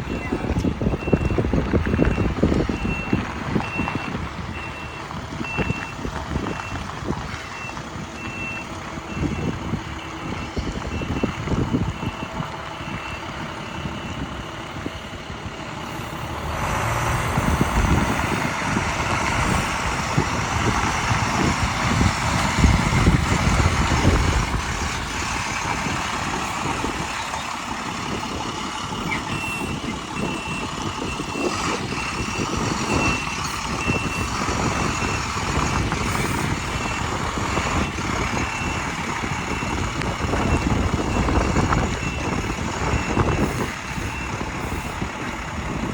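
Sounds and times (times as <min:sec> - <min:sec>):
road noise: 0:00.0 - 0:45.9
truck engine running: 0:00.0 - 0:45.9.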